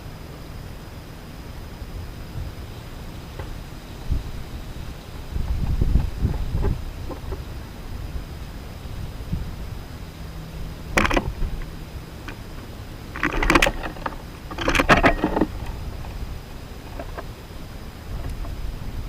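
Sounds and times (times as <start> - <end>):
steady low rumble: 0.0 - 19.0
rattling rustling bursts: 10.8 - 18.9.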